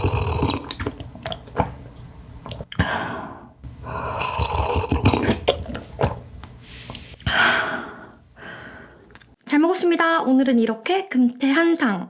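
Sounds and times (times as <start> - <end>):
person chewing and slurping: 0.0 - 1.8, 3.9 - 6.2
breathing: 2.8 - 4.4, 6.6 - 9.1.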